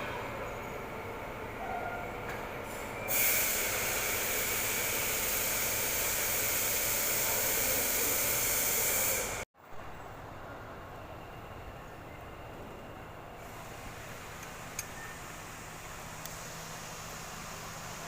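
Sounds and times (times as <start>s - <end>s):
loud steady hiss: 3.1s - 9.4s.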